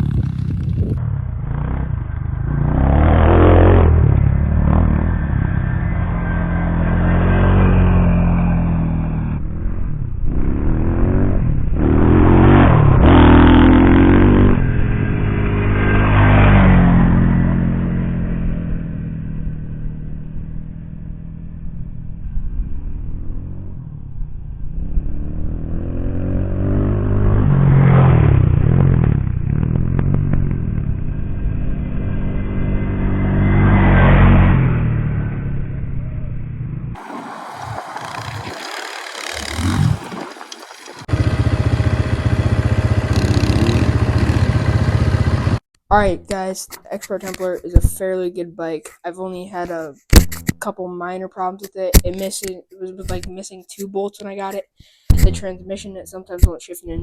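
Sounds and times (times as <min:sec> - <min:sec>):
dirt bike engine revving: 0:00.0 - 0:18.6, 0:37.0 - 0:45.6.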